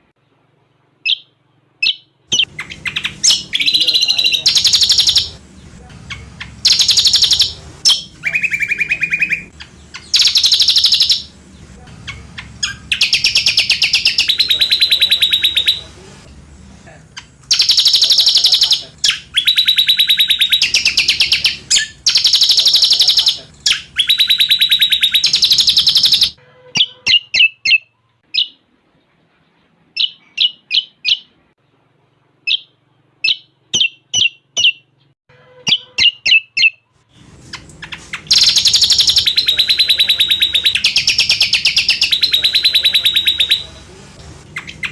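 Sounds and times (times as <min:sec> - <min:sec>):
bird song with high trills: 0:06.1 - 0:11.4, 0:12.1 - 0:15.8, 0:17.5 - 0:28.6, 0:35.6 - 0:36.9, 0:37.8 - 0:43.7.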